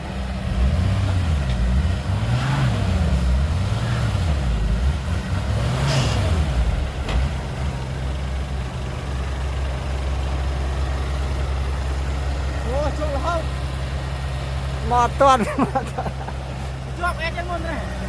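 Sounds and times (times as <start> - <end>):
heavy diesel engine revving: 0.0 - 18.0.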